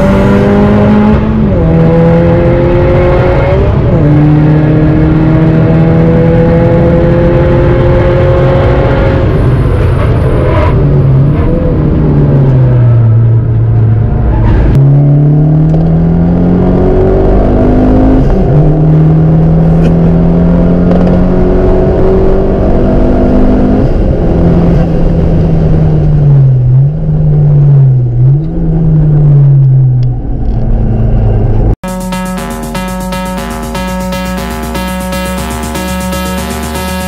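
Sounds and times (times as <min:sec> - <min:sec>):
car engine accelerating hard: 0:00.0 - 0:26.2.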